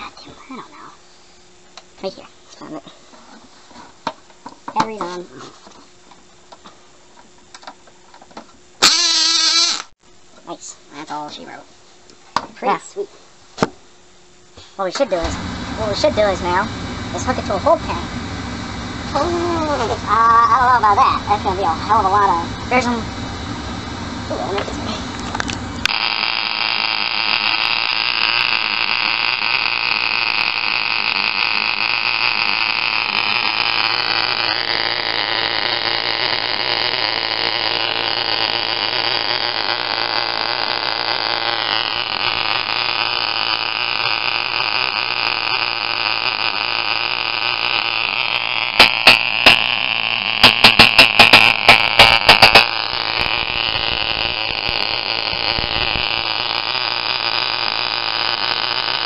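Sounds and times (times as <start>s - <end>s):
model engine buzzing whine: 3.2s - 10.0s, 14.2s - 59.0s
sharp crackling pops: 13.5s - 59.0s.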